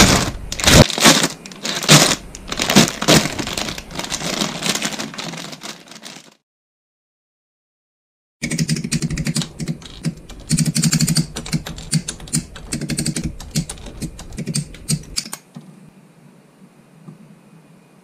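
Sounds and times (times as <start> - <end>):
rapid sharp clicking: 8.4 - 15.4.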